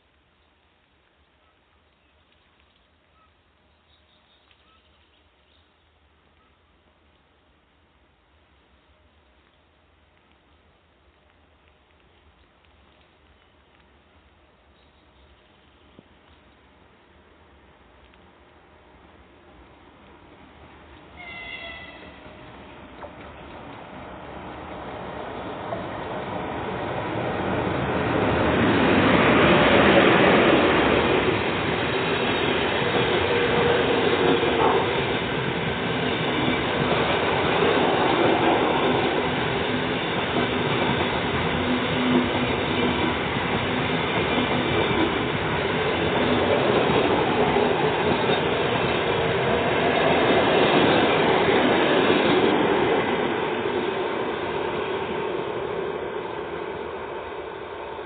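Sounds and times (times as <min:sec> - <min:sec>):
train passing: 0:17.3 - 0:58.0
wheels on rails: 0:20.9 - 0:58.0.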